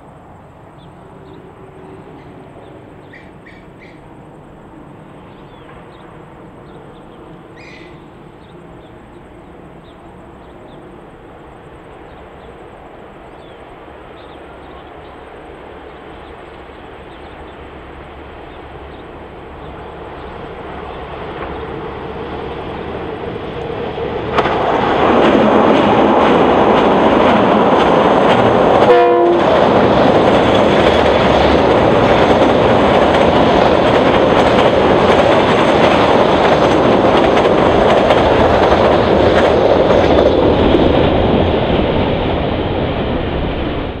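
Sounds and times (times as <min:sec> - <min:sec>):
diesel locomotive hauling freight: 0:00.0 - 0:44.0
short train horn toot: 0:28.8 - 0:29.5.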